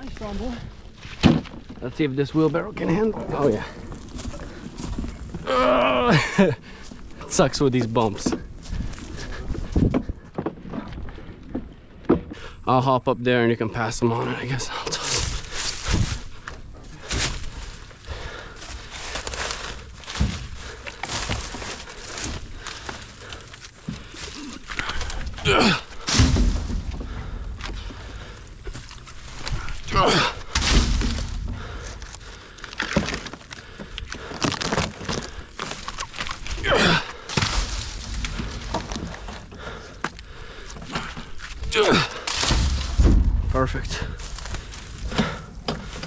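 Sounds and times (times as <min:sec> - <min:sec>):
log rounds thudding onto trailer: 0:01.0 - 0:01.8, 0:15.0 - 0:17.9, 0:18.6 - 0:23.2, 0:23.9 - 0:46.0
scuffing and rustling: 0:14.9 - 0:46.0.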